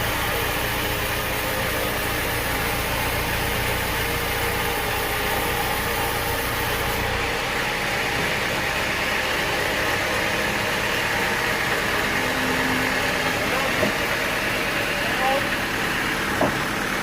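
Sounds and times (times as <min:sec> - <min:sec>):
machinery hiss: 0:00.0 - 0:07.2
sawmill machinery drone: 0:00.0 - 0:17.0.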